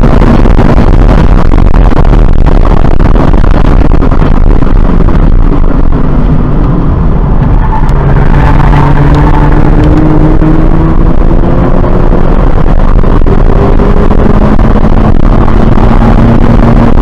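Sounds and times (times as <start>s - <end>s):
car engine note: 0.0s - 17.0s
wind and road noise: 0.0s - 17.0s.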